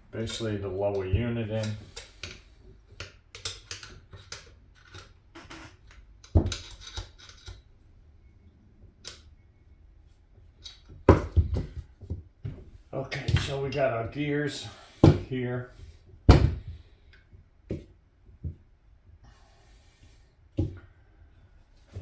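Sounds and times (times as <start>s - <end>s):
metal parts clicking and clinking: 3.2s - 7.7s, 13.1s - 13.8s.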